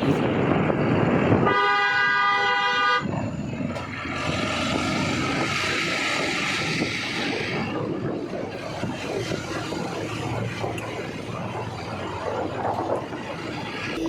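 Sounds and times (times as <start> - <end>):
car driving: 0.0 - 14.0
vehicle horn blast: 1.4 - 3.1.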